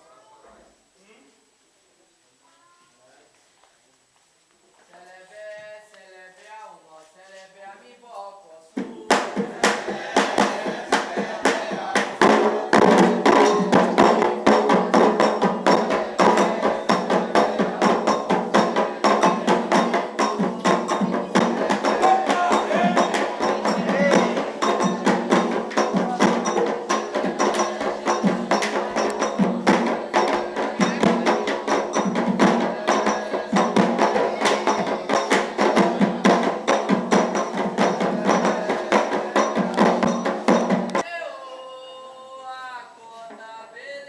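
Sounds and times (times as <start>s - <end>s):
hand drums: 8.8s - 41.1s.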